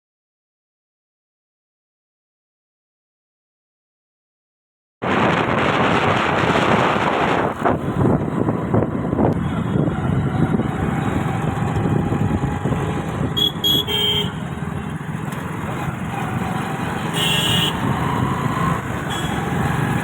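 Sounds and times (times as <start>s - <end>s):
traffic rumble: 5.0s - 20.0s.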